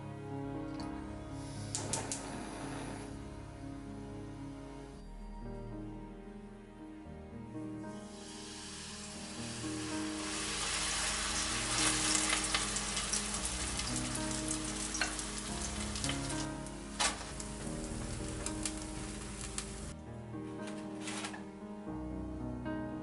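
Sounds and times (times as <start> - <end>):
batter sizzling in a frying pan: 8.1 - 19.9
sharp crackles and pops: 9.6 - 20.0.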